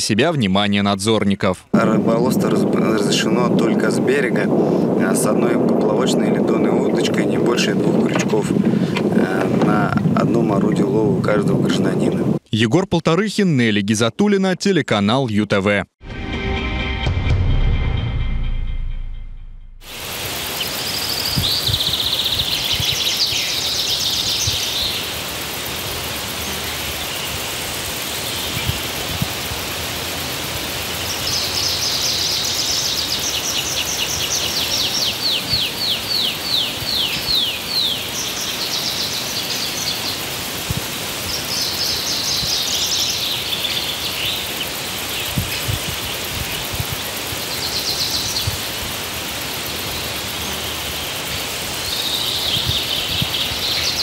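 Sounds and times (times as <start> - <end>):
outdoor background hiss: 0.0 - 15.9, 19.8 - 54.0
songbirds singing: 20.1 - 29.5, 30.3 - 54.0.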